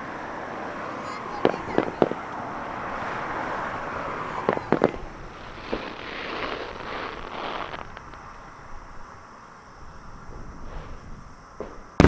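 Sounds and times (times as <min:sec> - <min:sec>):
fizzing crackle of fireworks: 0:01.0 - 0:03.4, 0:04.2 - 0:09.0.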